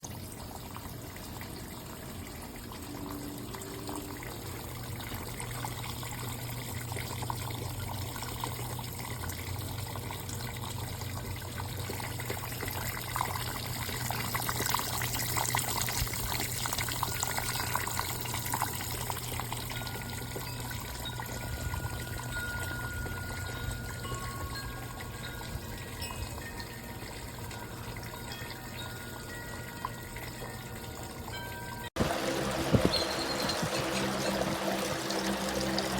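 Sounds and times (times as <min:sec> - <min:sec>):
low steady hum: 0:00.1 - 0:35.9
fountain water splashing: 0:32.0 - 0:35.9.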